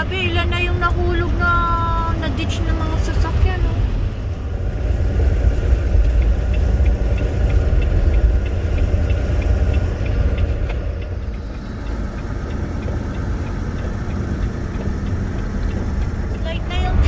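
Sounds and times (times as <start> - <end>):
truck engine and road rumble: 0.0 - 17.0
faint ticking: 4.3 - 17.0.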